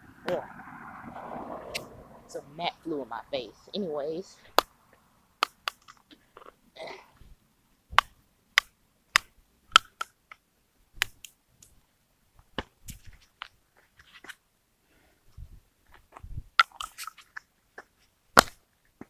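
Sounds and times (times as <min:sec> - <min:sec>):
plastic clicks and snaps: 0:05.4 - 0:06.5.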